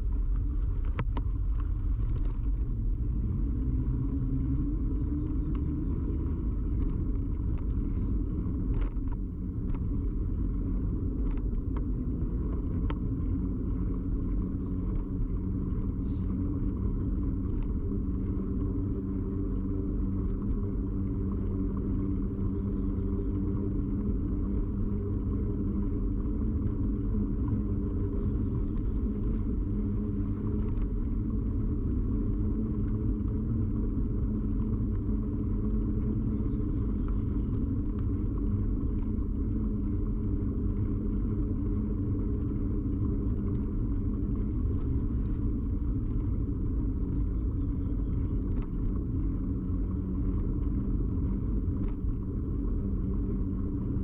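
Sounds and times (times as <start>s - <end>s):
bicycle rumble and hum: 0.0s - 54.0s.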